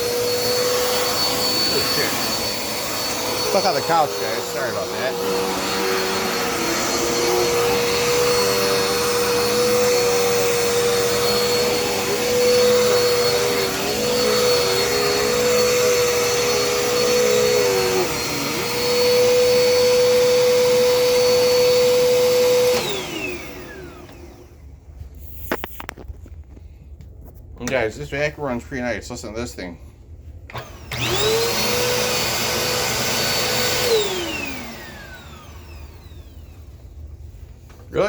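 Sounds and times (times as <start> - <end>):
vacuum motor winding down: 0.0 - 24.5, 30.5 - 36.6
vacuum cleaner motor whine: 0.0 - 24.7, 30.5 - 38.0.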